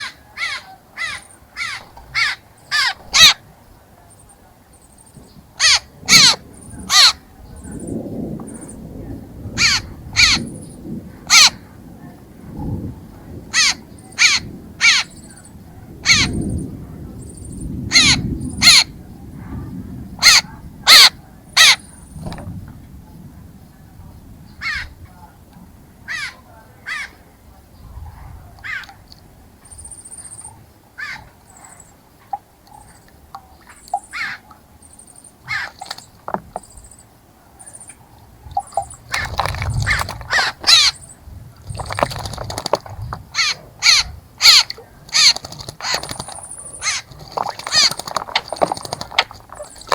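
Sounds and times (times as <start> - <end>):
bird harsh short calls: 0.0 - 3.4, 5.6 - 7.2, 35.5 - 36.0, 38.7 - 41.1, 43.4 - 49.9.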